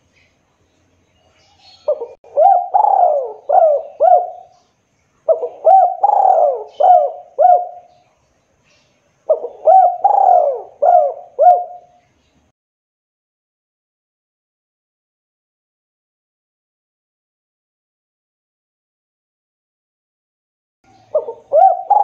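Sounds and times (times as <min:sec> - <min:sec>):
dove cooing: 0:01.5 - 0:04.6, 0:05.3 - 0:08.0, 0:09.3 - 0:12.0, 0:20.9 - 0:22.0.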